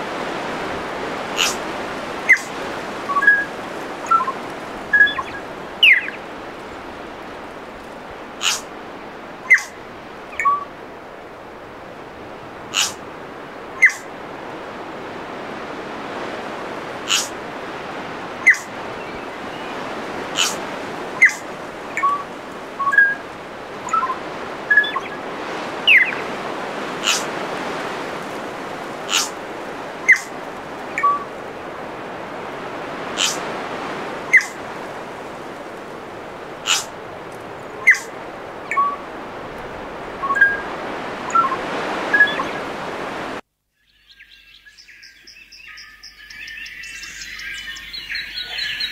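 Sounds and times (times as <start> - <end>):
steady rushing hiss: 0.0 - 43.4
sharp high bird calls: 1.4 - 1.6, 2.3 - 2.5, 4.1 - 6.2, 8.4 - 8.7, 9.5 - 9.8, 12.7 - 13.0, 13.8 - 14.1, 17.1 - 17.3, 18.4 - 19.8, 20.4 - 22.2, 27.0 - 27.3, 29.1 - 29.4, 30.1 - 30.4, 33.2 - 33.5, 34.3 - 34.6, 36.6 - 36.9, 37.8 - 38.1
small whistled bird notes: 1.4 - 1.6, 2.3 - 2.5, 3.1 - 6.2, 9.5 - 9.8, 10.4 - 10.7, 13.8 - 14.0, 20.4 - 20.6, 21.2 - 22.2, 22.8 - 23.2, 23.8 - 25.2, 29.1 - 29.3, 30.1 - 30.3, 31.0 - 31.3, 34.3 - 34.6, 36.7 - 36.9, 37.8 - 38.1, 38.7 - 39.0, 40.2 - 40.7, 41.3 - 42.6, 43.7 - 48.9.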